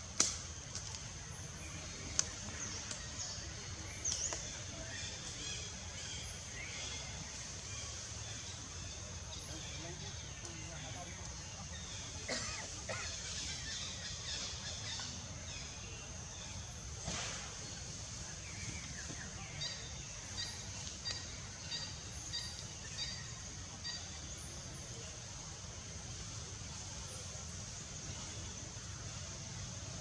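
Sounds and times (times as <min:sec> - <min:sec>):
steady outdoor hiss: 0:00.0 - 0:30.0.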